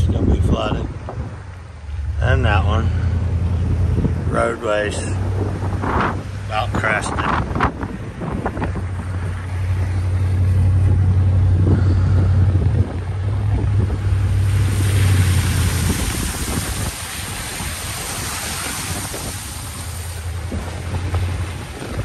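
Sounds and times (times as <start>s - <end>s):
vehicle engine droning: 0.0s - 22.0s
wind over microphone: 0.0s - 22.0s
broad rushing hiss: 14.2s - 20.8s.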